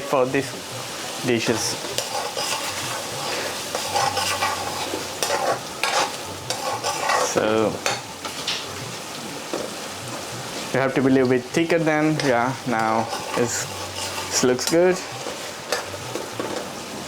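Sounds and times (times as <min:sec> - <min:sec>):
curry sizzling in a pan: 0:00.0 - 0:17.0
utensil scraping a pan: 0:00.8 - 0:08.4, 0:11.9 - 0:16.9.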